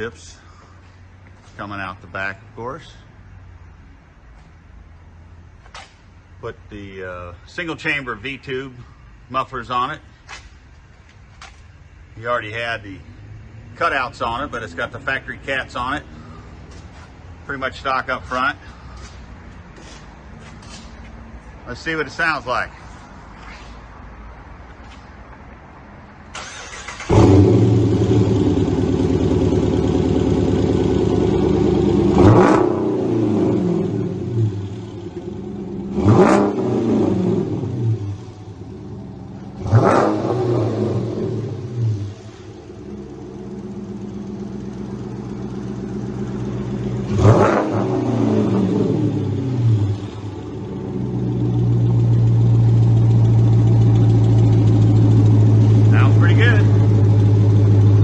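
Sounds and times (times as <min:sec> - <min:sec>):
car engine starting and idling: 0:00.0 - 0:58.0
engine revving: 0:26.3 - 0:58.0.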